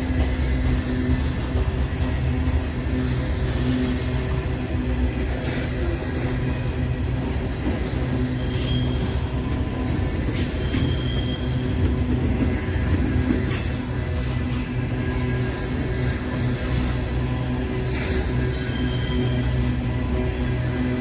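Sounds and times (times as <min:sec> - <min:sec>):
diesel locomotive engine drone: 0:00.0 - 0:21.0
freight train rumbling past: 0:00.0 - 0:21.0
wheel squeals: 0:07.4 - 0:21.0.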